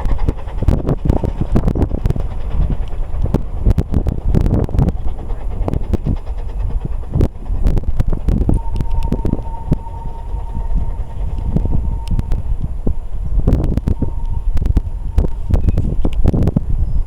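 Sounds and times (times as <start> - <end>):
low rumble: 0.0 - 17.0
thin whistle-like tone: 8.3 - 17.0.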